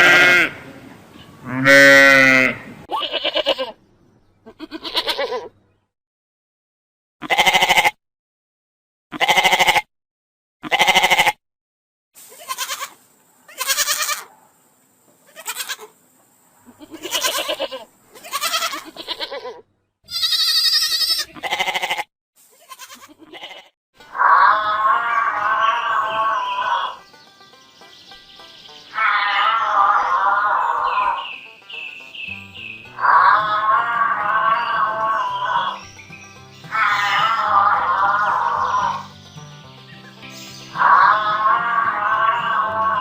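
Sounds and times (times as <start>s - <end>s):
animal bleating: 0.0s - 3.8s, 4.4s - 5.6s, 7.2s - 8.0s, 9.1s - 9.9s, 10.6s - 11.4s, 12.3s - 14.3s, 15.3s - 15.9s, 16.7s - 27.0s, 28.9s - 31.4s, 32.9s - 35.9s, 36.6s - 39.1s, 40.5s - 43.0s.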